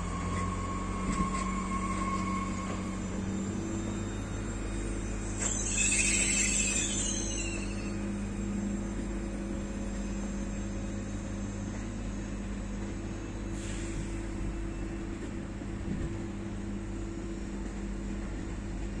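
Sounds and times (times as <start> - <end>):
brief air hiss: 13.5 - 14.2.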